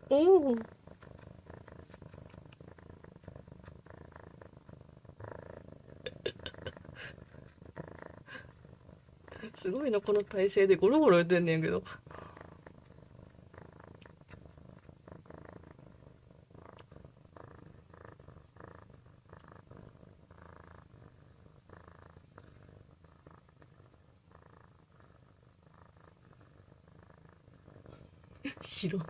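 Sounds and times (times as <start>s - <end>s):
kitten purring: 0.0s - 29.0s.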